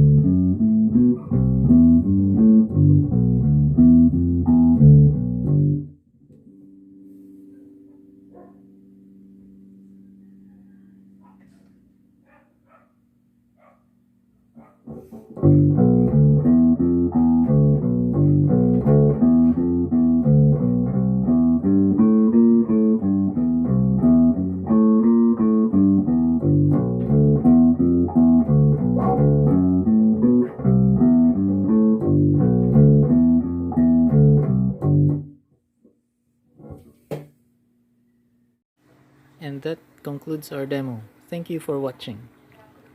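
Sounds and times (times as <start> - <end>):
electric bass guitar plucking: 0.0 - 12.2, 14.8 - 35.4.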